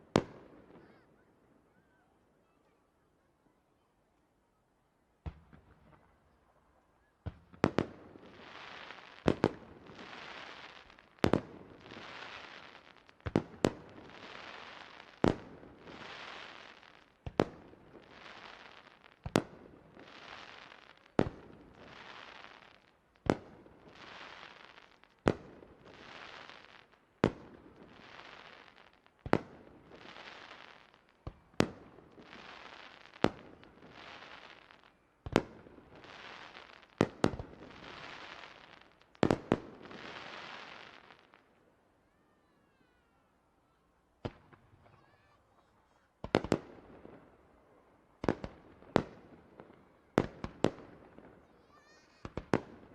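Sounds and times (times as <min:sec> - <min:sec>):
fireworks bursting with bangs: 0:07.2 - 0:41.4, 0:44.2 - 0:47.3, 0:48.2 - 0:52.9.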